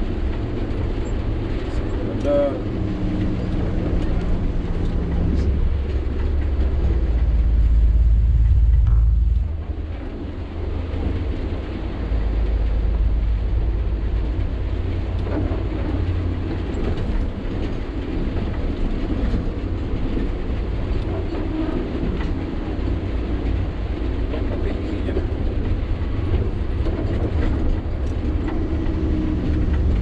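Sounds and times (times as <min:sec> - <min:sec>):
clattering and rattling: 0:00.0 - 0:30.0
truck engine rumble: 0:00.0 - 0:30.0.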